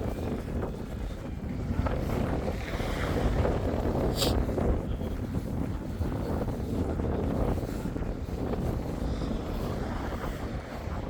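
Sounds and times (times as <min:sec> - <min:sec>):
wind gusting on microphone: 0:00.0 - 0:11.0.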